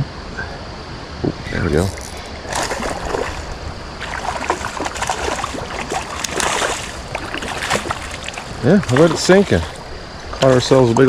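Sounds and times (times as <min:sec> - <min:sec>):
rushing creek water: 0:01.5 - 0:11.0
fish splashing in water: 0:01.9 - 0:10.7.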